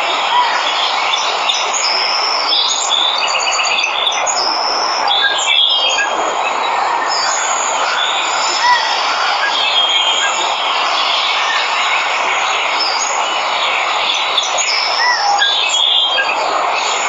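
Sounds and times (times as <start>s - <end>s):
birds chirping and trilling: 0.2s - 17.0s.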